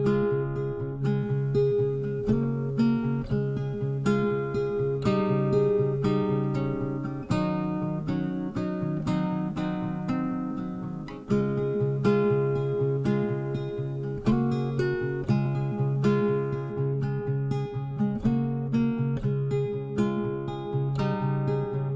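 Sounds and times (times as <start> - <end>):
acoustic guitar picking: 0.0 - 21.9.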